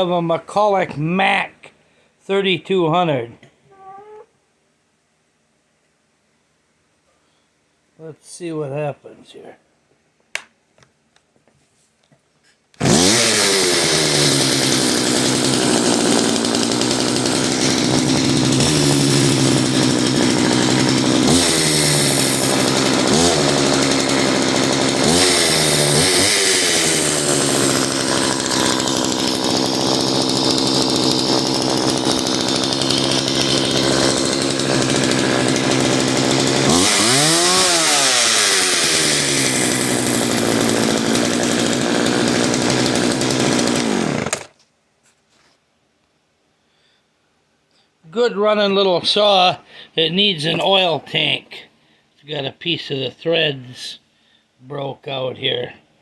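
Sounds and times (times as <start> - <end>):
chainsaw engine idling and revving: 12.8 - 44.5.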